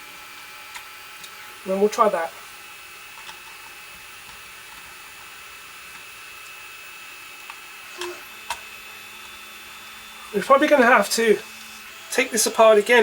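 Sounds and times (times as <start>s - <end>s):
printer whirring: 0.0s - 13.0s.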